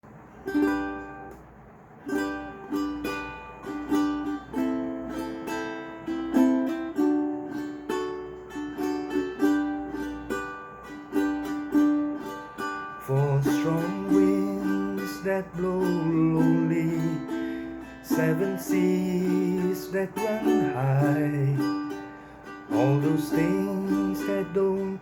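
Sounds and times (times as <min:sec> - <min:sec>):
ukulele strumming: 0:00.1 - 0:25.0.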